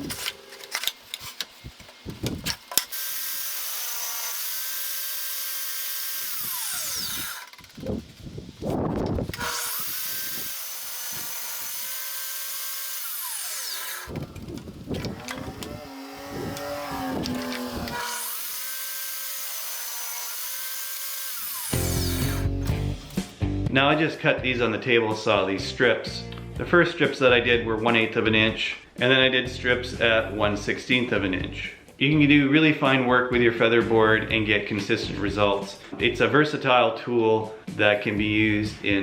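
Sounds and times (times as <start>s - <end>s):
table saw ripping wood: 0.0s - 23.4s.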